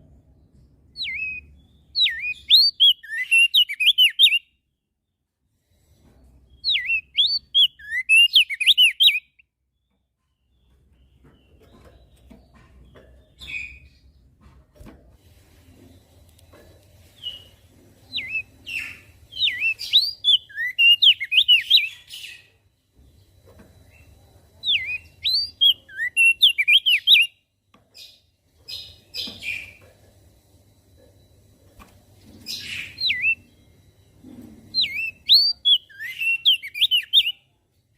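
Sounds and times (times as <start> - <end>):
bird chirps: 0.4 - 5.2, 6.4 - 14.3, 15.8 - 30.0, 30.9 - 37.6
bird singing whistled phrases: 1.0 - 1.4, 2.0 - 4.5, 6.6 - 9.4, 18.1 - 22.4, 24.6 - 27.4, 32.6 - 33.5, 34.8 - 37.4.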